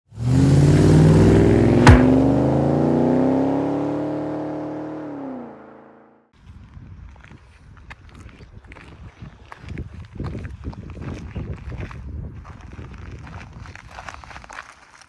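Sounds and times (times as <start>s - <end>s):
car engine revving: 0.2s - 6.0s
sharp click: 1.8s - 2.3s.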